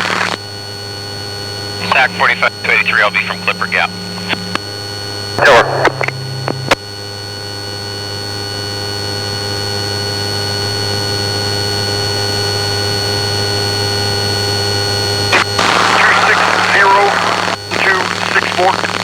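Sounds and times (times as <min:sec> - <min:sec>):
aircraft cabin drone: 0:01.8 - 0:04.7, 0:05.4 - 0:06.8
radio clicks: 0:01.8 - 0:04.7, 0:05.4 - 0:06.8, 0:15.3 - 0:19.0
whining tones: 0:01.8 - 0:04.7, 0:05.4 - 0:06.8.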